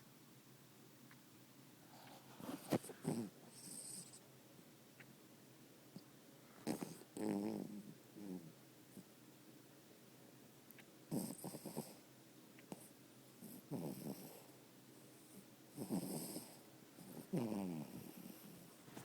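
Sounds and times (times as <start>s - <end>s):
quiet breathing: 1.8s - 4.3s, 11.3s - 19.0s
dog snoring: 2.4s - 4.2s, 6.6s - 8.5s, 11.1s - 12.0s, 12.7s - 18.8s.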